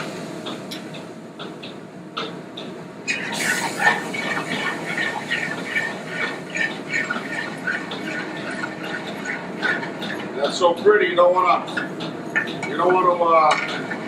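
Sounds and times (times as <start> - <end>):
sauce sizzling in a skillet: 3.1 - 9.9.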